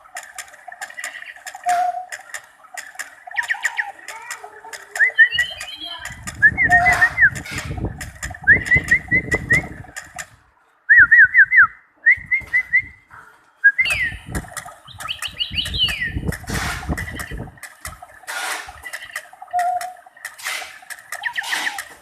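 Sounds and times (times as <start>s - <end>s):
clicks: 0.0s - 10.4s, 13.9s - 22.0s
songbird whistling: 5.0s - 7.4s, 8.4s - 9.8s, 10.9s - 13.0s, 13.6s - 14.3s, 14.9s - 16.2s.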